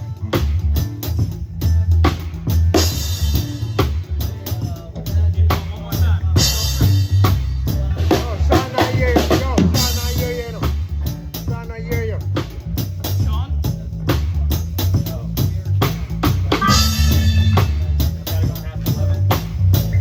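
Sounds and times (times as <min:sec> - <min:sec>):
drum kit beat: 0:00.0 - 0:20.0
heavy low bass: 0:00.0 - 0:20.0
live band playing: 0:00.0 - 0:20.0
pitched instrument or voice: 0:16.5 - 0:18.2.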